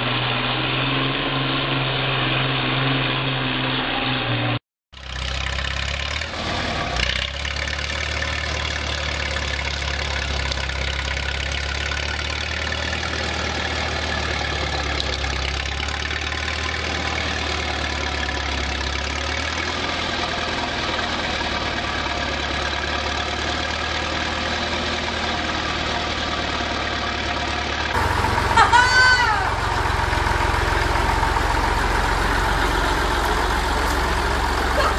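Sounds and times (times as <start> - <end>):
tractor engine idling: 5.0 - 34.9.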